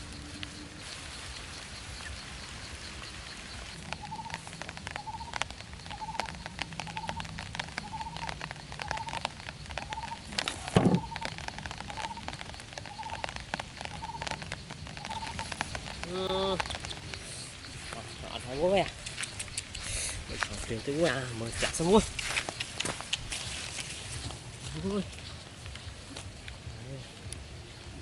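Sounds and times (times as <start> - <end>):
small clicks and crackles: 0.0 - 27.5
quail chirping: 1.4 - 23.6
rustling thump: 10.4 - 11.1.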